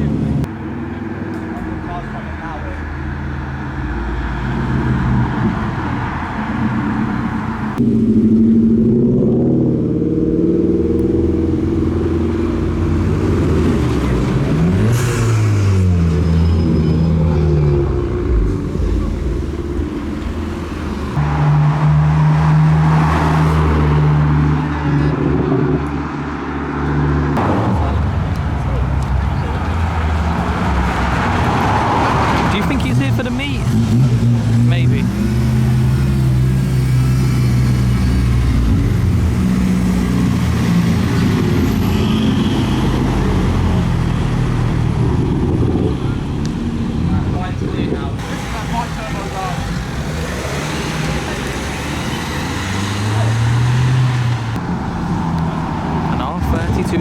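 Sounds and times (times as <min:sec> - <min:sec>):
car engines idling: 0:00.0 - 0:08.9, 0:11.0 - 0:57.0
loud engine drone: 0:00.0 - 0:57.0
car engine running at low revs: 0:17.8 - 0:21.3.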